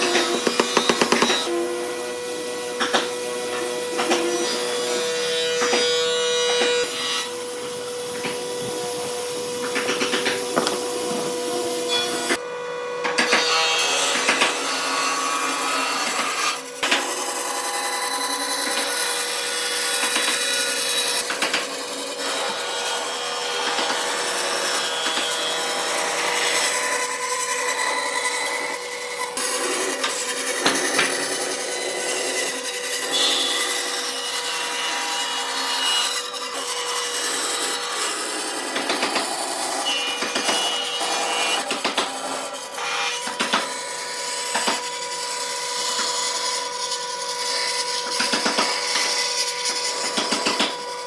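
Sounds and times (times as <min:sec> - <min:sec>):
rasping wood: 0:00.0 - 0:12.4
sawing wood: 0:00.0 - 0:51.0.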